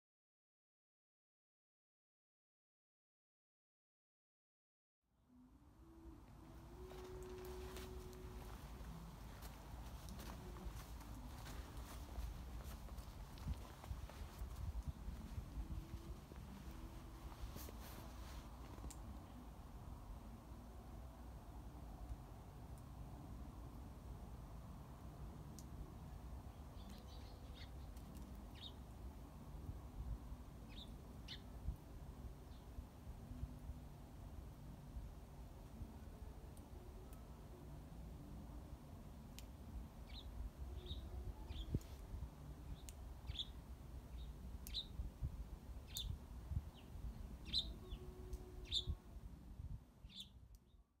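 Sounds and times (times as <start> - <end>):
faint low rumble: 5.1 - 51.0
low rumble: 5.5 - 20.8
small birds chirping: 26.5 - 28.8, 30.7 - 31.5, 40.0 - 42.0, 42.6 - 45.0, 45.8 - 49.0, 50.0 - 50.8.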